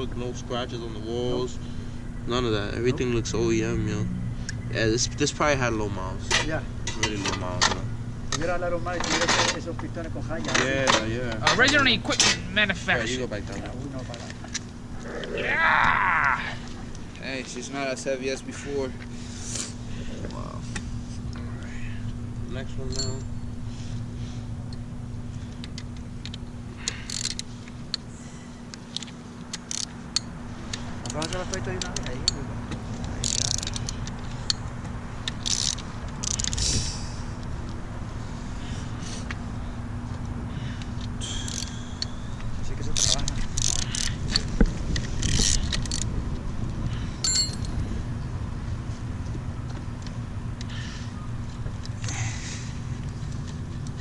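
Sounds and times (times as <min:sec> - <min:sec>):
steady low hum: 0:00.0 - 0:54.0
metal tools clinking on engine parts: 0:06.2 - 0:12.5, 0:22.6 - 0:23.5, 0:28.9 - 0:36.6, 0:42.8 - 0:44.4, 0:47.2 - 0:47.8
ringing metal clink: 0:22.8 - 0:23.5, 0:47.2 - 0:47.7
metal parts scraping: 0:26.8 - 0:27.5, 0:33.0 - 0:34.5, 0:35.3 - 0:36.7, 0:43.0 - 0:44.4, 0:45.0 - 0:46.1.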